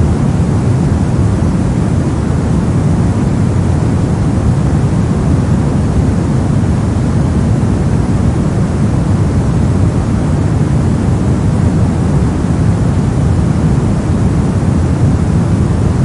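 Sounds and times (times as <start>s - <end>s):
brown noise rumbling hiss: 0.0s - 16.0s.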